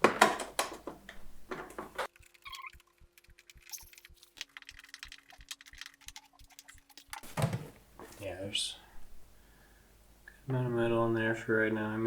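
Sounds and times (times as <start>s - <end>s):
soft regular ticks: 2.1s - 7.2s
faint steady hum: 7.7s - 12.0s.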